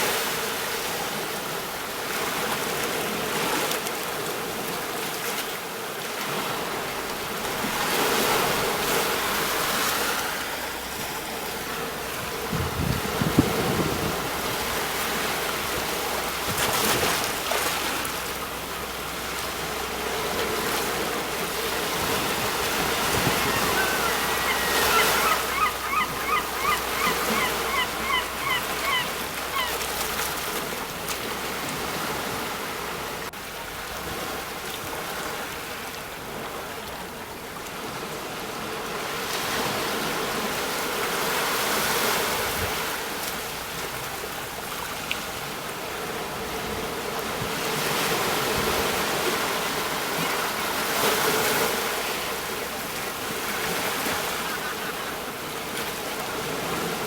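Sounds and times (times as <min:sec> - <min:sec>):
sea waves breaking on shore: 0:00.0 - 0:57.0
bird calling short notes: 0:23.0 - 0:29.8.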